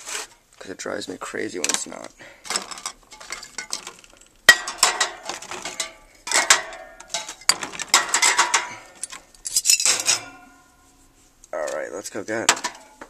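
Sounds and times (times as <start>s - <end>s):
metal spray cans clinking: 1.6s - 10.6s, 11.6s - 13.0s.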